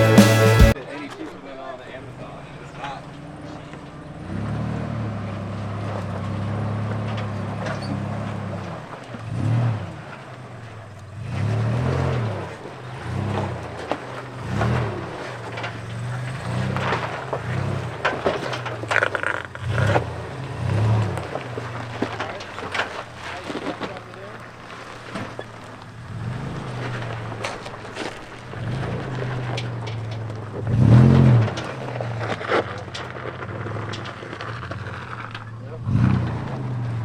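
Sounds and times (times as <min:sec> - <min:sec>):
truck engine revving: 0:00.0 - 0:00.8, 0:11.2 - 0:37.0.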